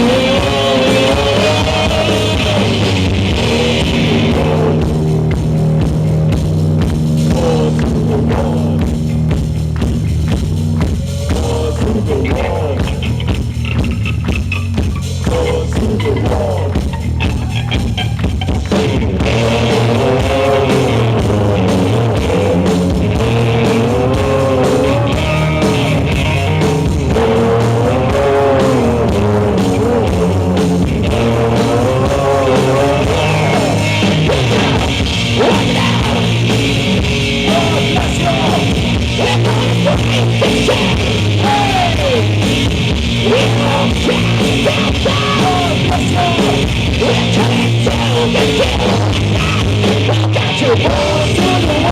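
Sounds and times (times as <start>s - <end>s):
rock band playing live: 0.0s - 51.9s.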